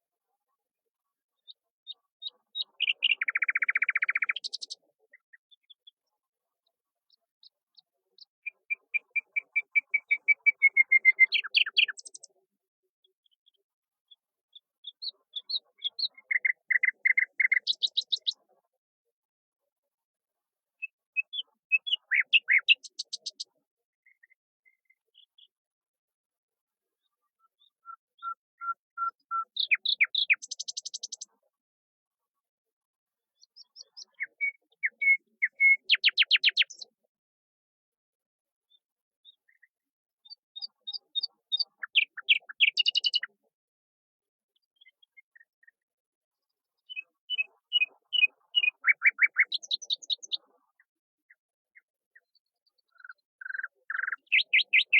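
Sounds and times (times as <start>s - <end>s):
songbird singing: 1.9s - 6.0s, 7.1s - 12.4s, 14.5s - 18.5s, 20.8s - 25.5s, 27.4s - 31.3s, 33.4s - 36.9s, 39.2s - 43.4s, 46.8s - 50.5s, 52.2s - 54.9s.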